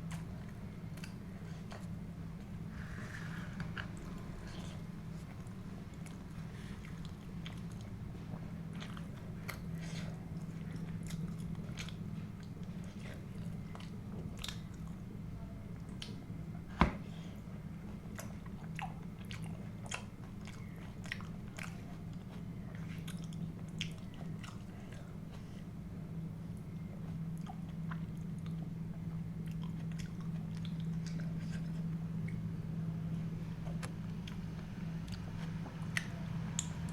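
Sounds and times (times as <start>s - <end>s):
low hum: 22.0s - 36.9s.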